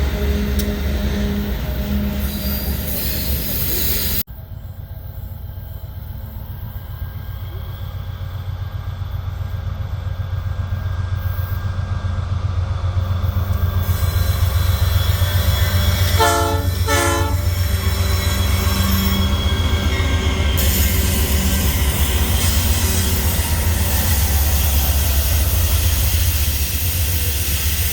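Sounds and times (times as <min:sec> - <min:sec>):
diesel locomotive engine rumble: 0:00.0 - 0:27.9
train horn blasts: 0:15.4 - 0:19.4.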